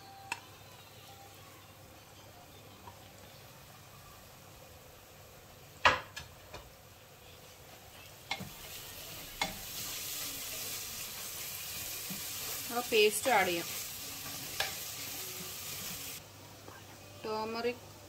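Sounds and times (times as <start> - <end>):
frying sizzle: 0.0 - 16.4.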